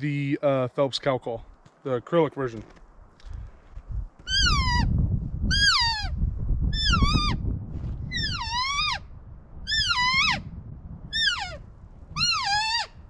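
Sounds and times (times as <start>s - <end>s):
elk call mews: 5.5s - 6.1s, 8.2s - 9.0s, 9.7s - 10.4s, 11.1s - 11.6s, 12.2s - 13.0s.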